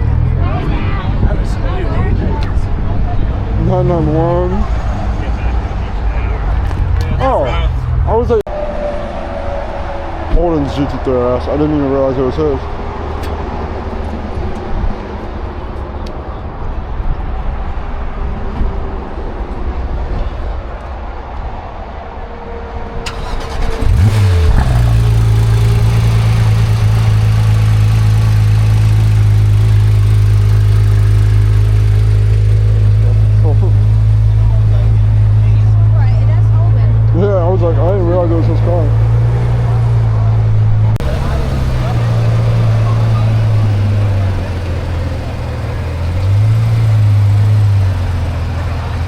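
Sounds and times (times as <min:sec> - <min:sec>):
car engine starting and idling: 0:23.0 - 0:49.0.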